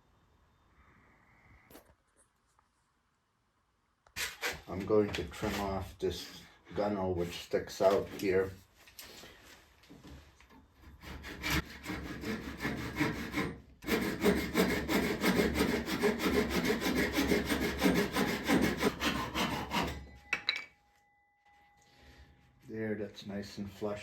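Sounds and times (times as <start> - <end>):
hand saw cutting wood: 4.2 - 4.7, 10.8 - 20.1.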